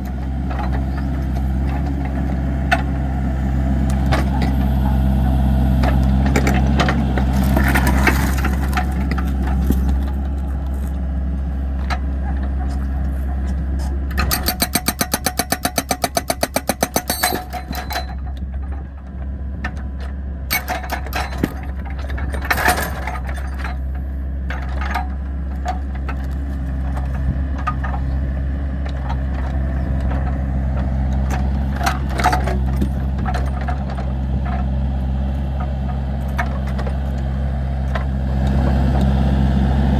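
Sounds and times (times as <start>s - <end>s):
diesel engine running: 0.0s - 39.9s
rapid pulsing rattle: 14.2s - 18.2s.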